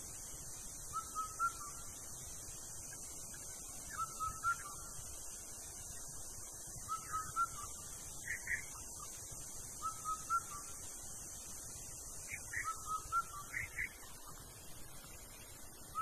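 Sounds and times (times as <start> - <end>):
steady high hiss: 0.0 - 16.0
bird whistling calls: 0.9 - 1.8, 3.9 - 5.0, 6.8 - 9.1, 9.8 - 10.8, 12.3 - 13.9.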